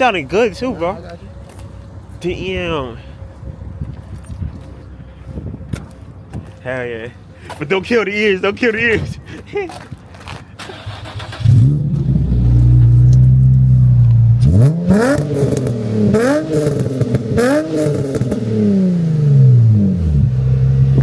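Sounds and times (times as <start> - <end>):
car engine idling: 0.0 - 7.8
car engine revving: 10.6 - 21.0
car engine starting: 10.6 - 21.0.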